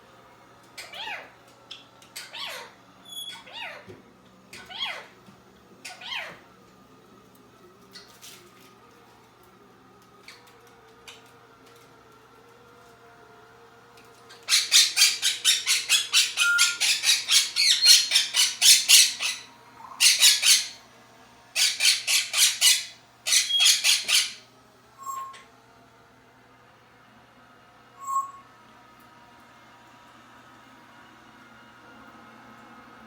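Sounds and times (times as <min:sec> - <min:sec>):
parrot squawking: 0:00.8 - 0:01.3, 0:02.2 - 0:03.9, 0:04.6 - 0:05.1, 0:05.8 - 0:06.4, 0:14.3 - 0:20.8, 0:21.6 - 0:24.4.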